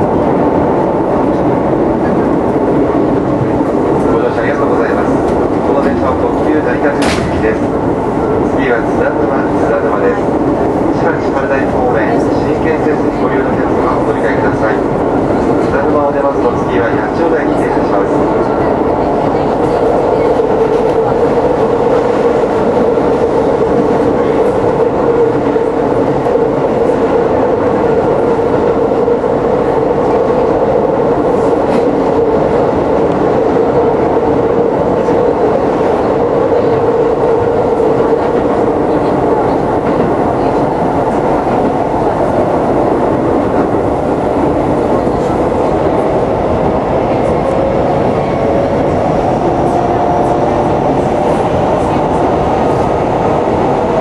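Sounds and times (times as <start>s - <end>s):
electric train hum: 0.0s - 54.0s
train wheels rumbling on track: 0.0s - 54.0s.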